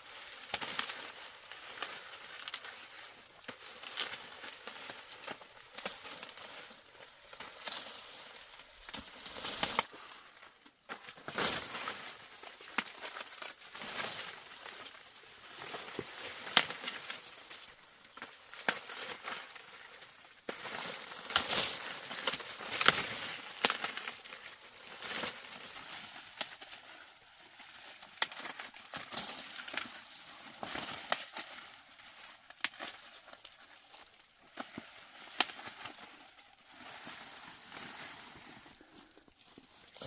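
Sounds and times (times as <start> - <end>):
dry plants rustling: 0.0 - 40.0.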